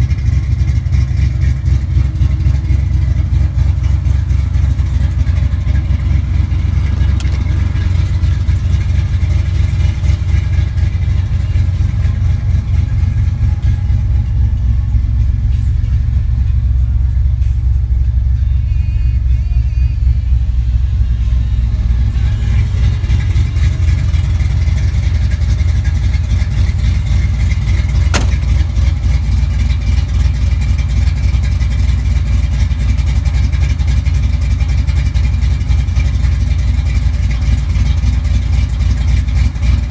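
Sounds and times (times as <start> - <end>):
pickup truck engine running: 0.0 - 39.9
sharp click: 28.2 - 28.6.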